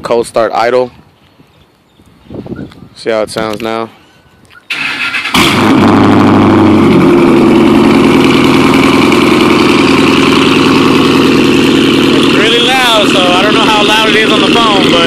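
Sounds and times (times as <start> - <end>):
car starter cranking: 4.7 - 5.8
loud car engine idling: 5.3 - 15.0.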